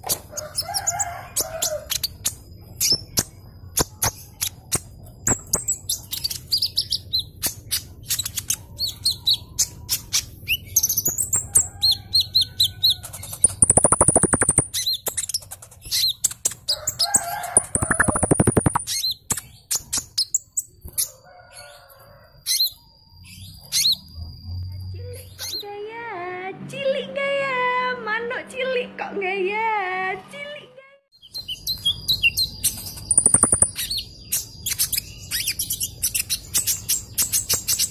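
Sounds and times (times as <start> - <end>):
sunbird singing: 5.3 - 16.2, 31.2 - 37.9
loud fast bird rattles: 13.0 - 16.6, 17.4 - 19.0, 32.8 - 33.9.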